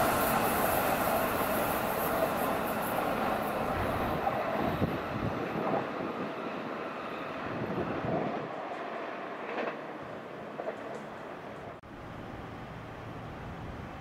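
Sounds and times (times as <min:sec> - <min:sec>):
electric train running past: 0:00.0 - 0:14.0.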